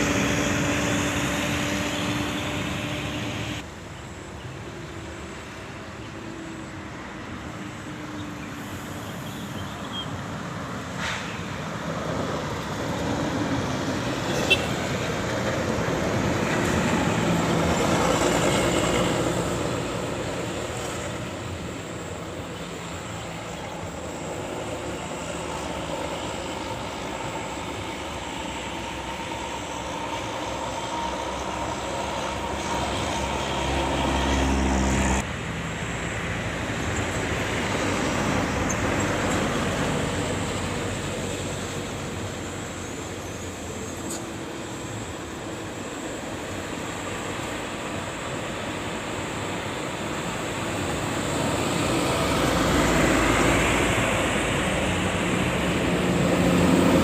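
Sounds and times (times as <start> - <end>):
heavy vehicles driving past: 0.0 - 57.0.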